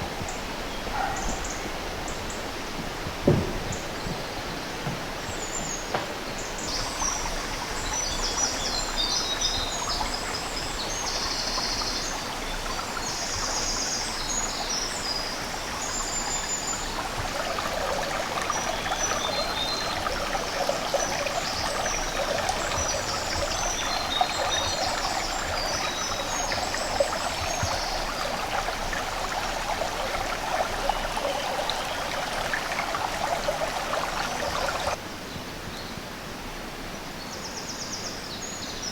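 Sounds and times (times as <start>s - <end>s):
stream running: 0.0s - 35.1s
songbirds singing: 0.1s - 35.0s.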